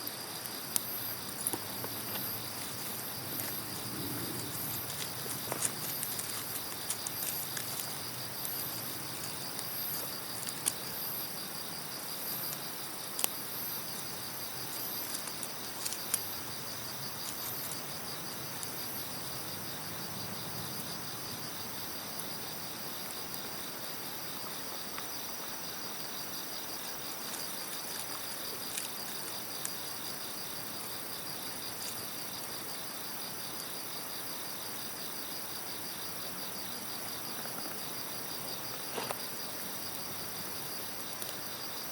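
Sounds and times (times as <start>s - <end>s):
campfire popping: 0.0s - 20.8s, 24.2s - 32.9s
crickets chirring: 0.0s - 41.9s
higher insect call pulsing: 0.0s - 41.9s.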